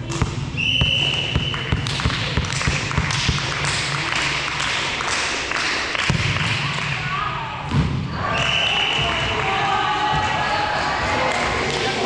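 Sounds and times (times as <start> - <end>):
volleyball bouncing and struck: 0.0 - 4.0, 6.0 - 6.8.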